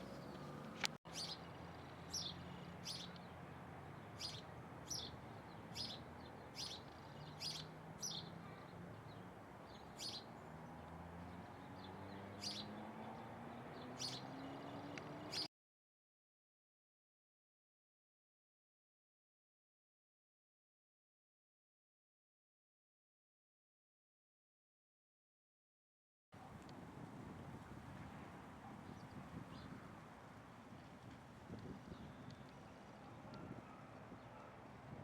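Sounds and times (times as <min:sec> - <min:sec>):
bird chirping: 0:00.0 - 0:15.5.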